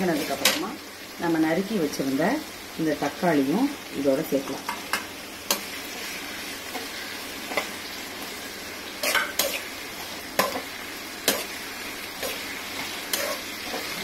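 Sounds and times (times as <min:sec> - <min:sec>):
onions and tomatoes sizzling in oil: 0:00.0 - 0:14.0
spatula scraping and knocking pan: 0:09.0 - 0:09.7, 0:10.4 - 0:11.6, 0:12.2 - 0:14.0.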